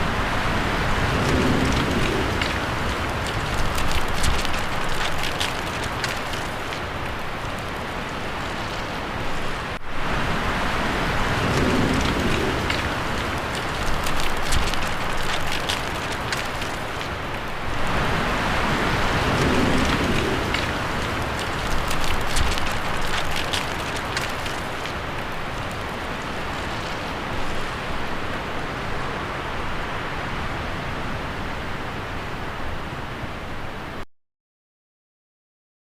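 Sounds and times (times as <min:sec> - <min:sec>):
wind rustling tree leaves: 0:00.0 - 0:34.0.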